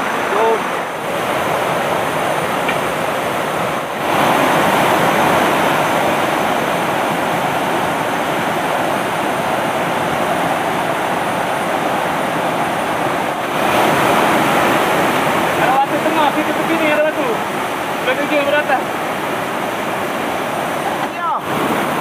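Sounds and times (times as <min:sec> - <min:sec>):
river rushing over rocks: 0:00.0 - 0:22.0.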